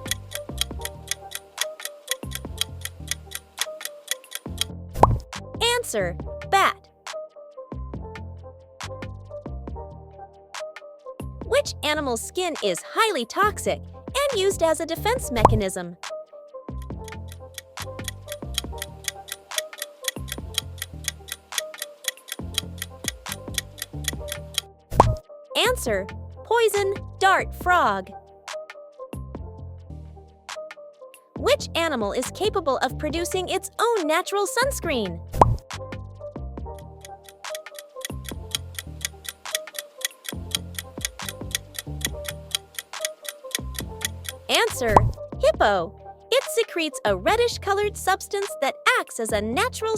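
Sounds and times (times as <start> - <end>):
fast clock ticking: 0.0 - 4.7, 16.8 - 25.1, 36.8 - 45.1
background music with pulsing bass: 0.0 - 7.1, 7.7 - 12.2, 16.7 - 25.2, 29.2 - 30.6, 34.8 - 46.3.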